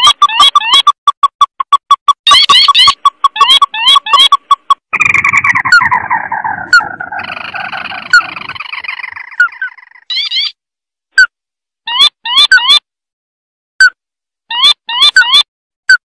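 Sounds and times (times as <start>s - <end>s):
crake call with chattering trill: 0.0s - 10.5s.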